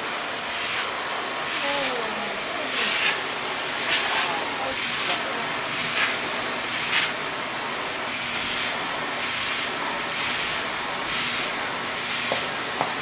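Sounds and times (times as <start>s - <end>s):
vacuum cleaner whine: 0.0s - 13.0s.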